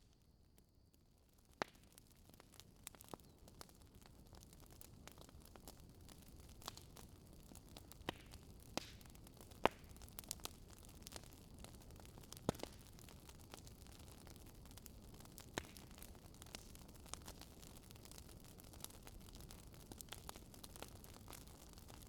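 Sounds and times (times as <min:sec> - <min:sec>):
wood fire crackling and popping: 0:00.8 - 0:22.0.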